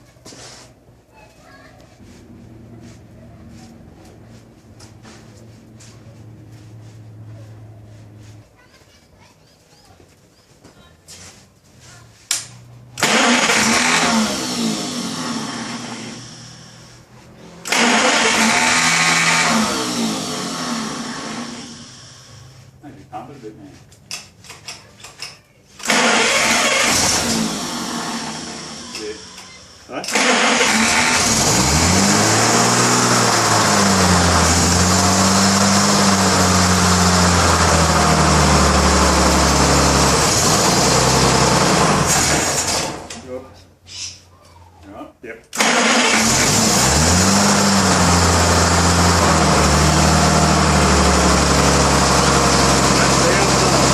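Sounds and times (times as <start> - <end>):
engine cranking: 13.0 - 16.8, 17.6 - 21.9, 25.8 - 43.3, 45.5 - 53.9.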